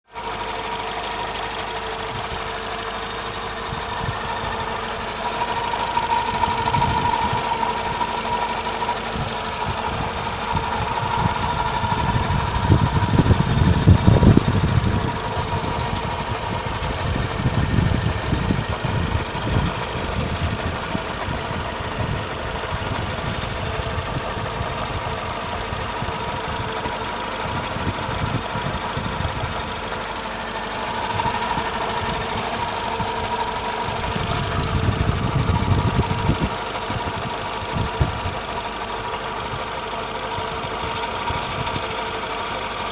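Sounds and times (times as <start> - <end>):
car engine grinding and whining: 0.0 - 42.9.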